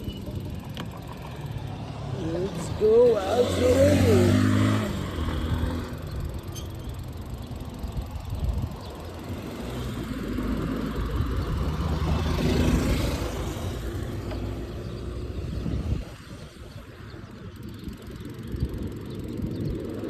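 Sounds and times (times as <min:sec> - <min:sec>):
motorcycle engine running: 0:00.0 - 0:16.0
wind noise on microphone: 0:02.2 - 0:20.0.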